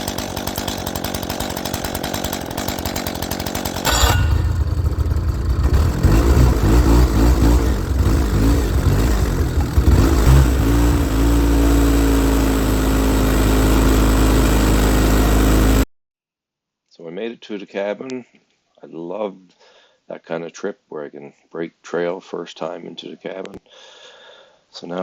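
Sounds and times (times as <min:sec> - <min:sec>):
chainsaw: 0:00.0 - 0:15.9
snowmobile engine running: 0:03.8 - 0:15.8.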